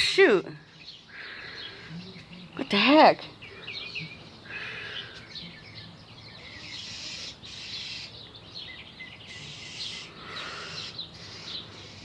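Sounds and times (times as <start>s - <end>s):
bird chirping calls: 0.0s - 12.0s.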